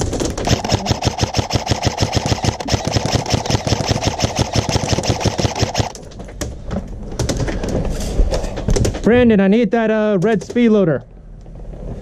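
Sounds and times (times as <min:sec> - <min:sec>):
airsoft gun full-auto rattle: 0:00.0 - 0:06.0.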